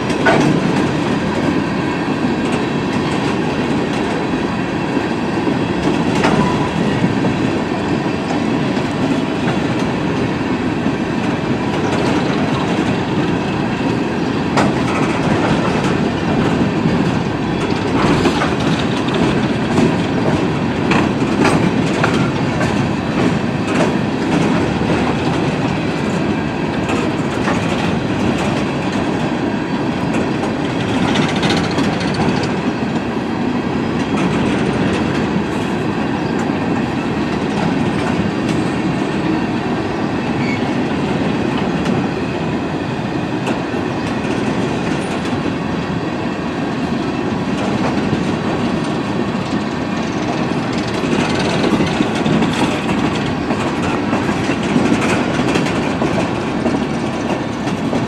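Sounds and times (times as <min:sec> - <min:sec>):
wheels clicking over rail joints: 0:00.0 - 0:01.6, 0:04.9 - 0:29.4, 0:30.0 - 0:33.1, 0:47.5 - 0:58.0
railroad cars rolling past: 0:00.0 - 0:58.0.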